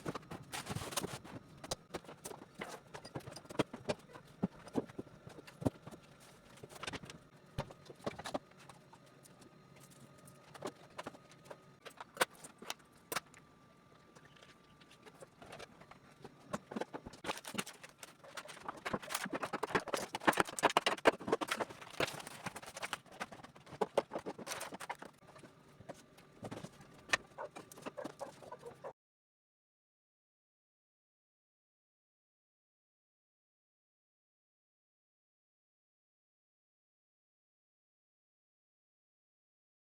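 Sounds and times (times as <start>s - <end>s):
containers clicking and knocking: 14.1s - 25.5s.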